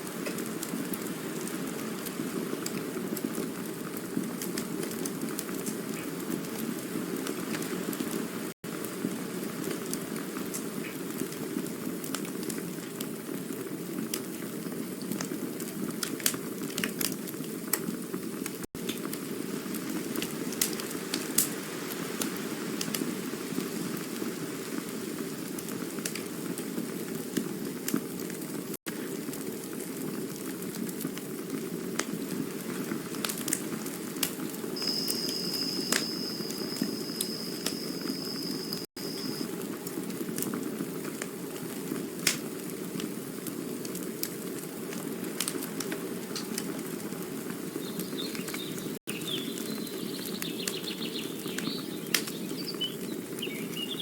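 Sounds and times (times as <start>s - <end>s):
campfire crackling: 0.0s - 54.0s
campfire low rush: 0.0s - 54.0s
high steady whistle: 34.8s - 39.4s.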